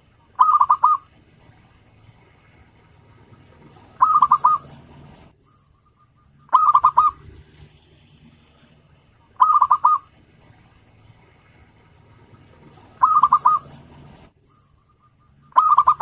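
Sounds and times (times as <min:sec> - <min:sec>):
dove cooing: 0:00.3 - 0:01.6, 0:02.2 - 0:07.3, 0:09.4 - 0:10.6, 0:11.5 - 0:16.0.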